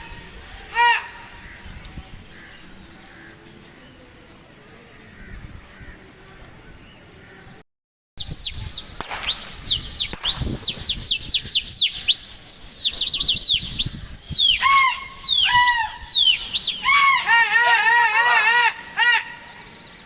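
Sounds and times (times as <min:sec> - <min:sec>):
high whistled bird-like chirps: 0:08.2 - 0:17.3.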